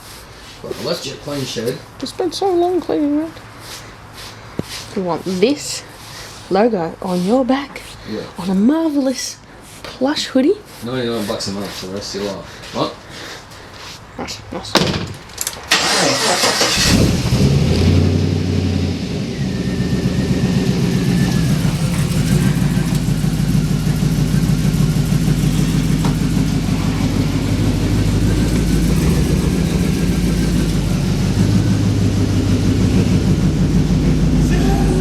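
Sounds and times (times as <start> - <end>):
engine starting and idling: 15.5 - 35.0.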